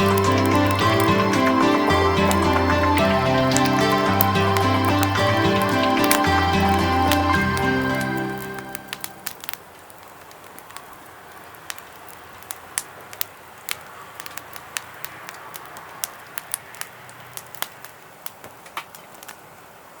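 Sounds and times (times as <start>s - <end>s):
firewood crackling and popping: 0.0s - 20.0s.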